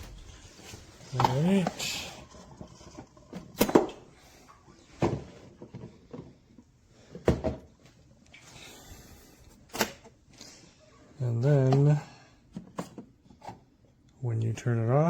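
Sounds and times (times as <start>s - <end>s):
objects clunking on hard surfaces: 0.0s - 4.1s, 4.8s - 8.0s, 11.4s - 13.7s.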